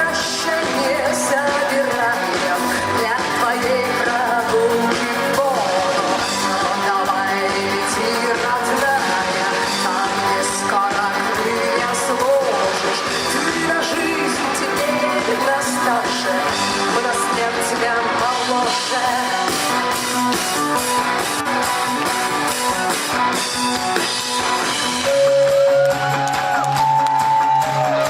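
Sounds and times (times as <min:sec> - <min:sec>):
person singing: 0:00.0 - 0:20.0
drum kit: 0:00.0 - 0:28.0
guitars: 0:00.0 - 0:28.0.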